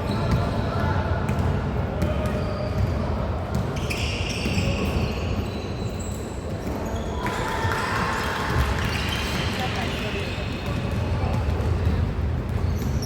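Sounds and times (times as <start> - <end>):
basketball bouncing on court: 0.1 - 5.0.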